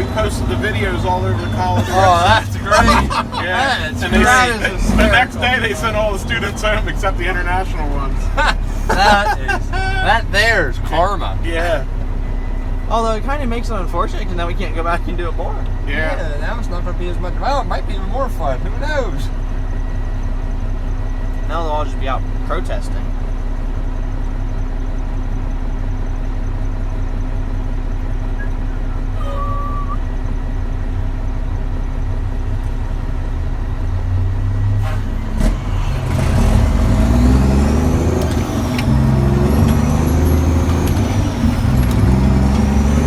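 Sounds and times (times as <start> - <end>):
diesel truck engine revving and shifting: 0.0 - 19.5, 32.0 - 43.0.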